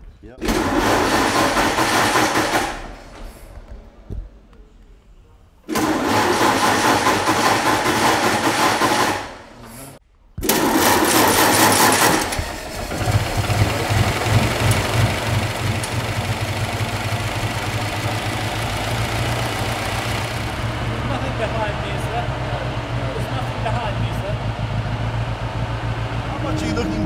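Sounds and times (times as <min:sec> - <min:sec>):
engine cranking on starter motor: 0:00.4 - 0:03.6, 0:05.7 - 0:09.8, 0:10.4 - 0:22.4
car engine running: 0:11.2 - 0:27.0.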